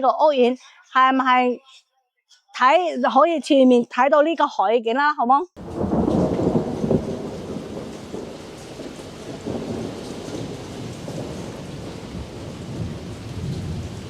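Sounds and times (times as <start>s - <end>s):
low rolling thunder: 5.6s - 14.0s
steady rain: 5.6s - 14.0s.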